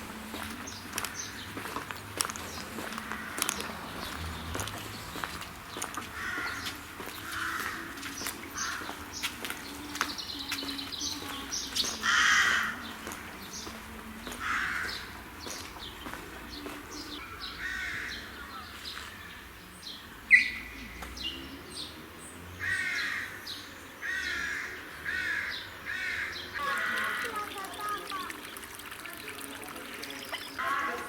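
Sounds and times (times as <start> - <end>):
birds cawing: 0.8 - 1.7, 2.4 - 4.6, 5.7 - 9.4, 11.2 - 13.2, 14.4 - 16.2, 17.4 - 19.2, 22.6 - 28.3, 30.3 - 31.0.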